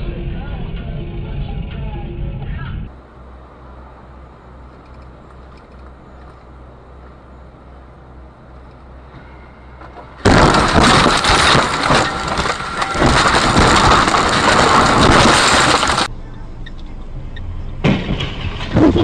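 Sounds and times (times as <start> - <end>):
car crash with breaking glass: 9.8 - 16.1, 17.8 - 19.0.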